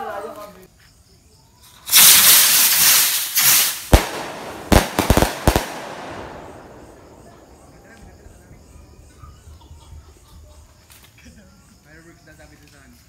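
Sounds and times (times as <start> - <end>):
firework rushing hiss: 1.7 - 8.3
fireworks bangs: 1.9 - 9.1.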